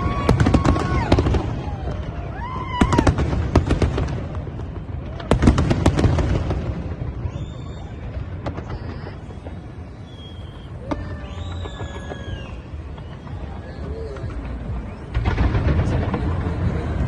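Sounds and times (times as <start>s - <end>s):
fireworks bangs and crackles: 0.0s - 17.0s
low rumble: 6.3s - 17.0s.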